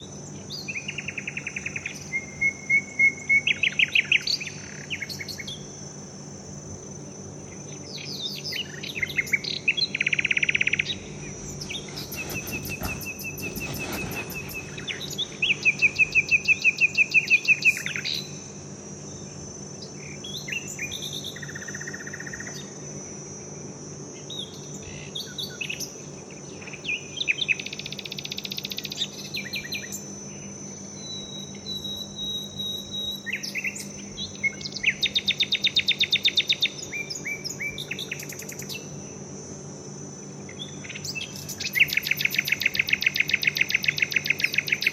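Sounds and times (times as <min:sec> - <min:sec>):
high insect drone: 0:00.0 - 0:44.9
birds chirping and trilling: 0:07.7 - 0:18.4.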